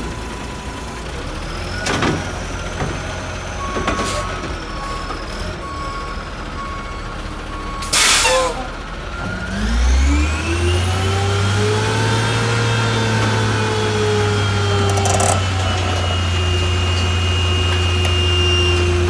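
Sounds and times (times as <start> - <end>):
diesel engine revving: 0.0 - 19.0
reversing beeps: 0.4 - 10.4
air brakes hissing: 7.8 - 8.8.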